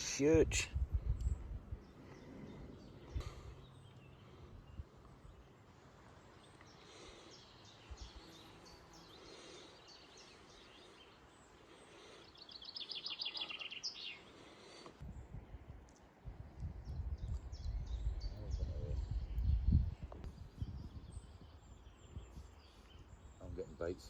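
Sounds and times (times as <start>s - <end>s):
small birds singing: 0.0s - 24.0s.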